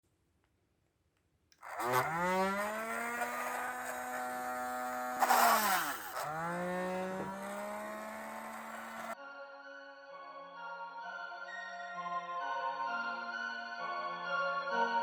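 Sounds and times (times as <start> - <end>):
harsh grinding: 1.6 - 9.2
small electric motor whining: 1.6 - 9.2.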